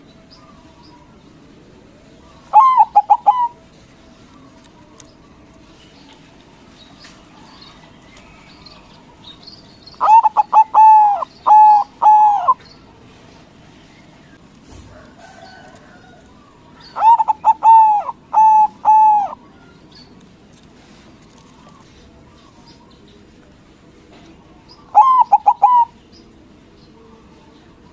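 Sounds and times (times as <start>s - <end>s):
dove cooing: 2.1s - 4.6s, 10.0s - 12.6s, 15.2s - 19.8s, 24.8s - 26.0s.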